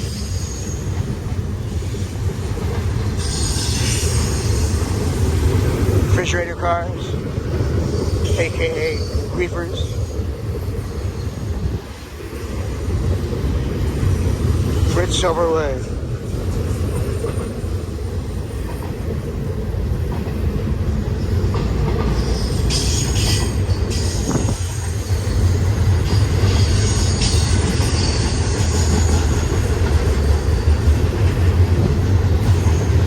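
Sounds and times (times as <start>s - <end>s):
wheels squealing against rail: 0.0s - 2.2s, 3.1s - 5.4s, 7.7s - 11.6s, 21.2s - 29.5s
train wheels rumbling on rail: 0.0s - 33.0s.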